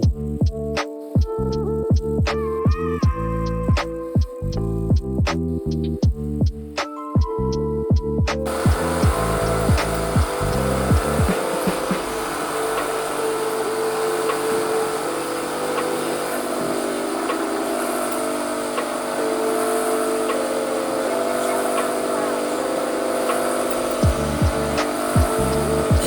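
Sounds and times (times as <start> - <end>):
corn sheller motor hum: 8.5 - 26.0.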